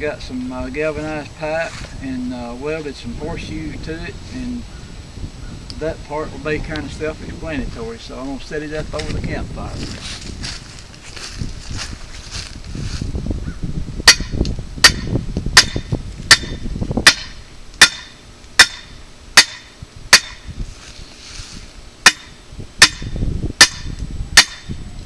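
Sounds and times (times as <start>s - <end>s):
hammer striking metal pipe: 14.1s - 20.4s, 22.1s - 24.7s.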